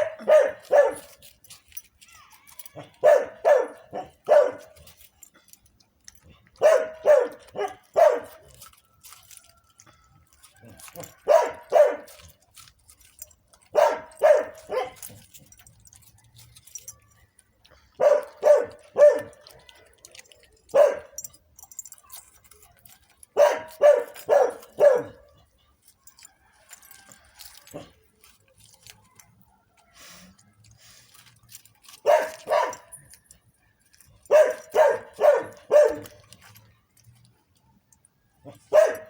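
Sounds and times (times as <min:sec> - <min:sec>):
dog barking: 0:00.0 - 0:01.2, 0:02.8 - 0:04.8, 0:06.6 - 0:08.5, 0:10.9 - 0:12.3, 0:13.7 - 0:15.2, 0:18.0 - 0:19.7, 0:20.7 - 0:21.2, 0:23.4 - 0:25.3, 0:32.0 - 0:33.0, 0:34.2 - 0:36.2, 0:38.4 - 0:39.0.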